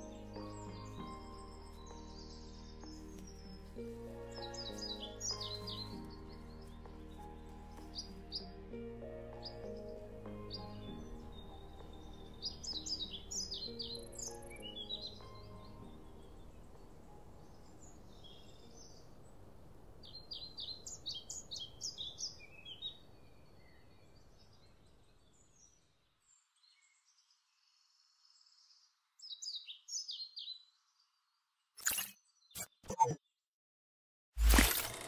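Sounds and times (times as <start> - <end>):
small songbird singing: 0.0 - 8.5, 9.4 - 19.3, 20.0 - 31.6
sharp click: 31.8 - 33.1.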